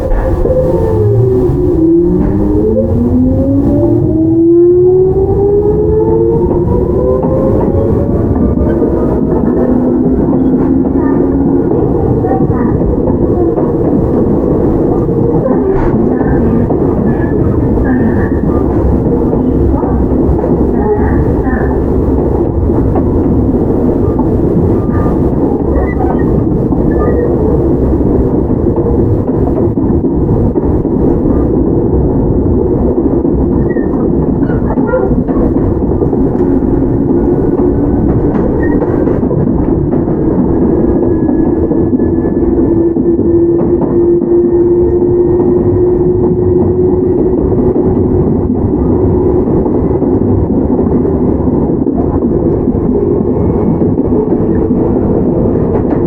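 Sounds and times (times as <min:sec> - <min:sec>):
train wheel and running noise: 0:00.0 - 0:56.0
traction motor hum rising: 0:00.1 - 0:11.5.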